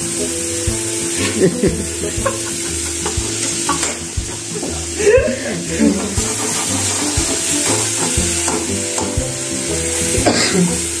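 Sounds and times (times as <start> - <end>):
background music with steady beat: 0.0 - 11.0
food sizzling in hot oil: 0.0 - 11.0.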